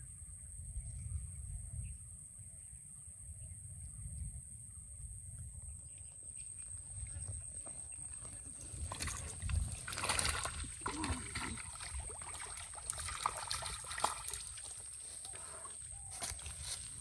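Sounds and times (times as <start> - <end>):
water splashing and sloshing: 7.0 - 17.0.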